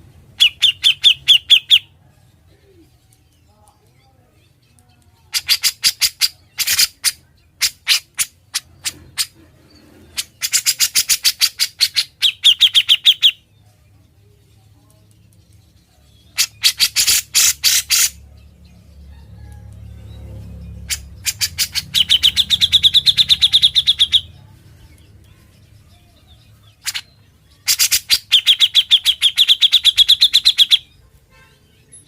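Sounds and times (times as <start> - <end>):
bulbul singing rapid trills: 0.3 - 2.0, 20.0 - 32.0.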